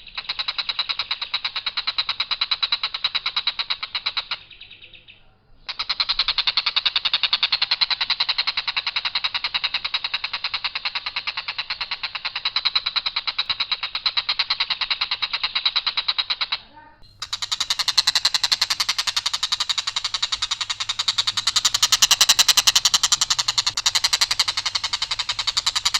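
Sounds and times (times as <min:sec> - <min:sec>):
kingfisher rapid harsh call: 0:17.0 - 0:25.9.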